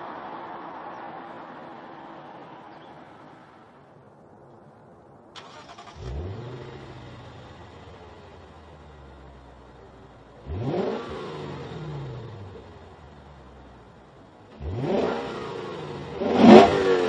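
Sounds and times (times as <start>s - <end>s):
car engine revving and idling: 5.4s - 17.0s.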